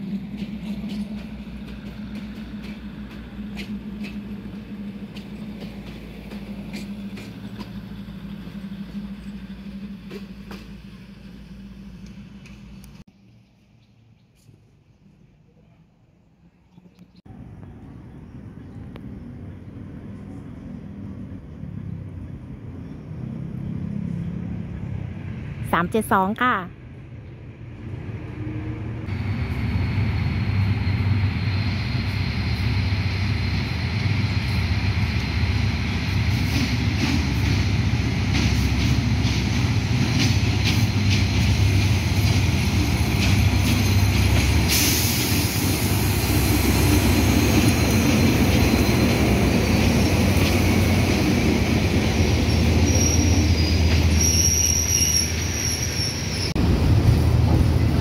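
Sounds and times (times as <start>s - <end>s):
wheels clacking over rail joints: 0.0s - 13.0s, 34.0s - 54.4s
diesel locomotive engine rumbling: 0.0s - 58.0s
high-pitched wheel squeal: 52.4s - 56.6s.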